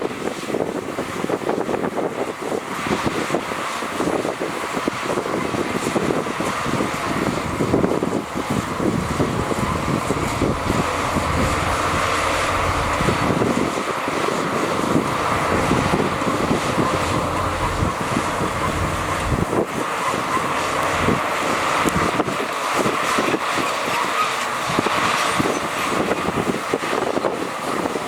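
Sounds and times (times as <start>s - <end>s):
heavy diesel machinery running: 0.0s - 28.0s
wind buffeting microphone: 0.0s - 28.0s.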